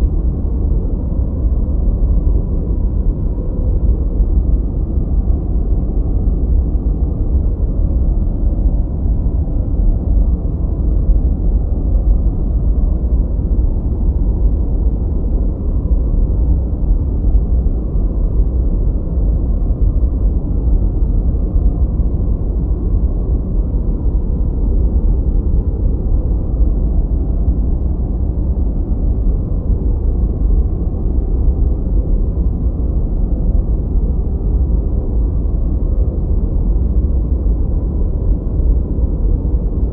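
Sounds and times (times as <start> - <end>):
deep rumbling brown noise: 0.0 - 39.9.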